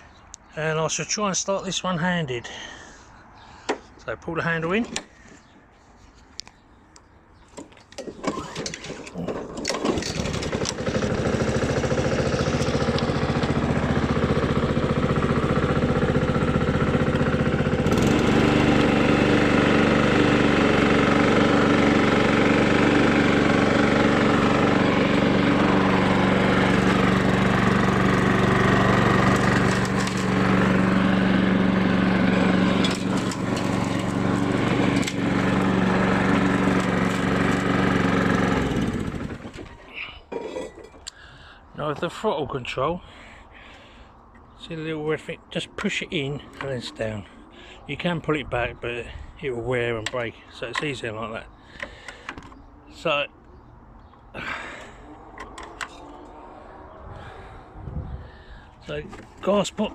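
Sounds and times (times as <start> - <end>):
starter cord pulls and clicks: 7.5 - 13.8, 21.3 - 31.5, 32.1 - 39.8, 51.7 - 52.6, 54.8 - 56.4
lawnmower engine running: 7.9 - 41.1, 49.9 - 59.9.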